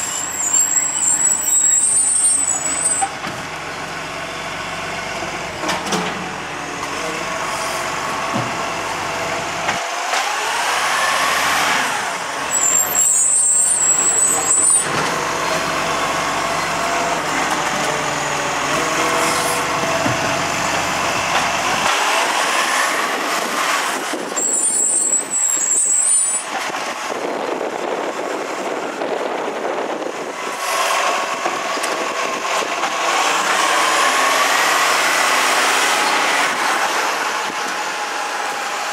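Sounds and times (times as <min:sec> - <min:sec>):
garbage truck diesel engine revving: 0:01.9 - 0:24.1, 0:30.5 - 0:38.9.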